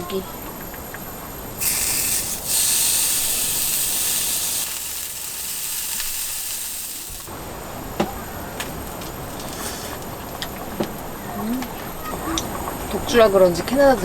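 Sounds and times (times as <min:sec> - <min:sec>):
meat sizzling on a griddle: 0:01.6 - 0:07.3.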